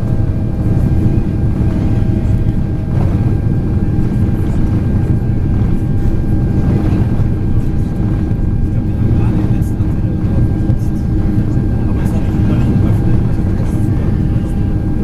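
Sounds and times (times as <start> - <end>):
airplane cabin engine drone: 0.0 - 15.0
faint steady whine: 0.0 - 15.0.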